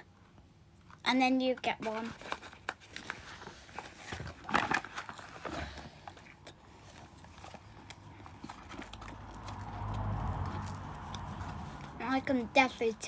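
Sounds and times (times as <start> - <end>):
crunchy snack being chewed: 4.4 - 11.9.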